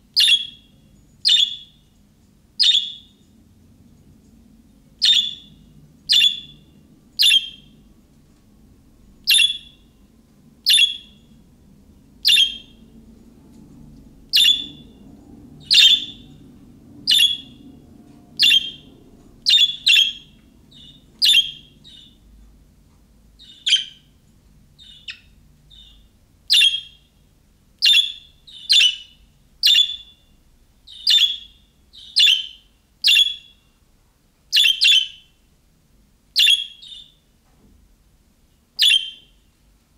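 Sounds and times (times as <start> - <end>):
budgerigar chirping: 0.2 - 0.7, 1.3 - 1.8, 2.6 - 3.1, 5.0 - 6.6, 7.2 - 7.7, 9.3 - 9.8, 10.6 - 11.2, 12.2 - 12.8, 14.4 - 14.8, 15.6 - 16.3, 17.1 - 17.6, 18.4 - 18.8, 19.5 - 22.2, 23.4 - 24.1, 24.8 - 27.1, 27.8 - 30.2, 30.9 - 33.6, 34.5 - 35.3, 36.4 - 37.2, 38.8 - 39.3.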